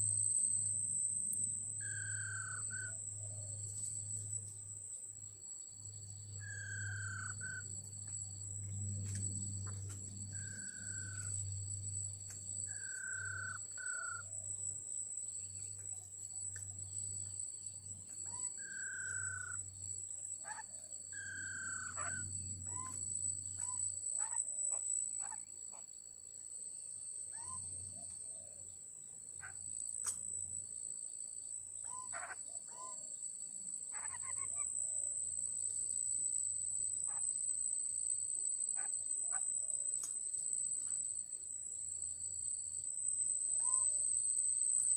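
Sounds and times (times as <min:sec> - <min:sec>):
high-pitched insect buzz: 0:00.0 - 0:04.6, 0:05.2 - 0:14.5, 0:15.2 - 0:28.2
sharp bird calls: 0:21.2 - 0:23.0, 0:31.8 - 0:33.0.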